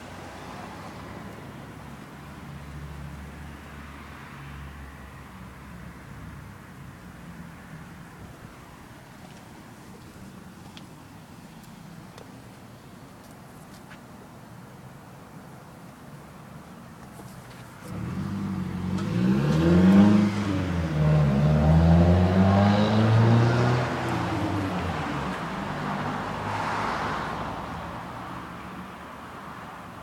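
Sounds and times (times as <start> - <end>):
car engine accelerating: 17.8 - 25.0.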